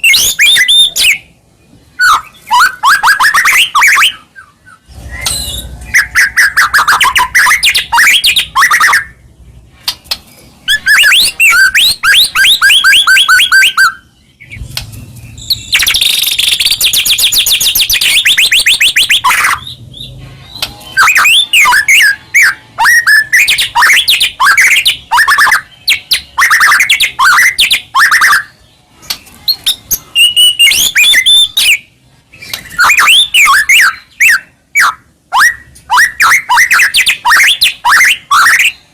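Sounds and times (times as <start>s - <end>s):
bird singing whistles and trills: 0.0s - 9.2s, 10.6s - 14.6s, 15.2s - 38.9s.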